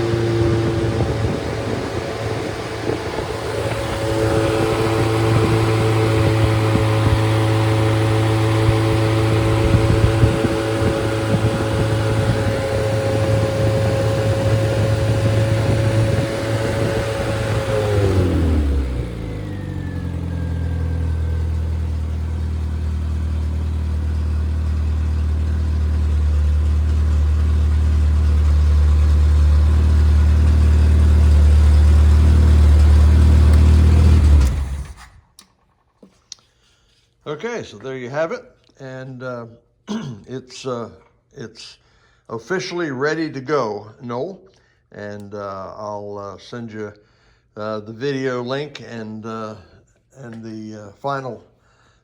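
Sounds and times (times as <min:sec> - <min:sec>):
car engine running and idling: 0:00.0 - 0:35.8.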